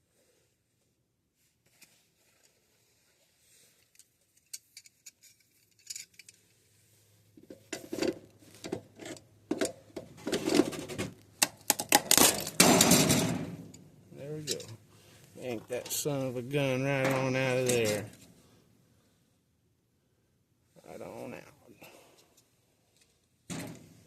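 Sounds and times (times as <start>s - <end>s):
plastic and metal clacking and rattling: 7.4s - 13.8s.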